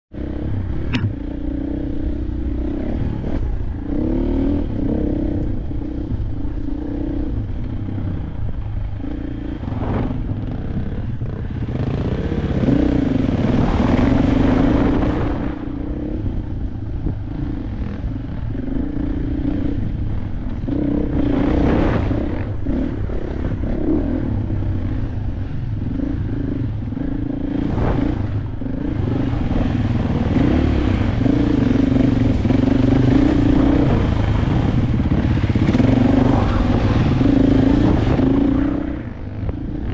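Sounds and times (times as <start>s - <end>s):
dirt bike engine running: 0.1s - 39.9s.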